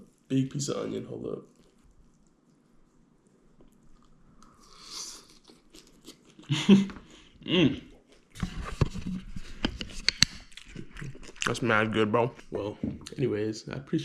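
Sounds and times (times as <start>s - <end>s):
person chewing food: 1.5s - 6.5s, 9.4s - 11.8s.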